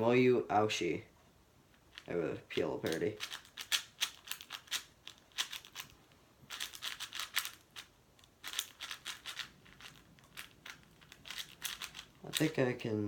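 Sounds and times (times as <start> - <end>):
speed cube clicking: 2.8 - 5.9, 6.5 - 12.5.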